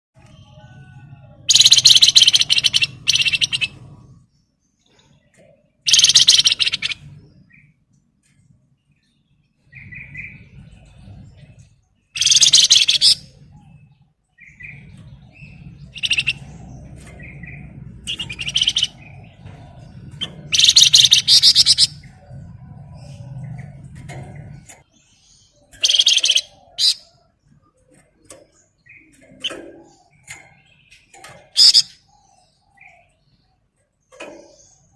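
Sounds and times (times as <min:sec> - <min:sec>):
soft bird chirps: 0:00.2 - 0:34.9
songbird trilling: 0:01.4 - 0:03.9, 0:05.9 - 0:07.2, 0:12.1 - 0:13.5, 0:14.4 - 0:22.4, 0:25.5 - 0:27.3, 0:28.9 - 0:33.1.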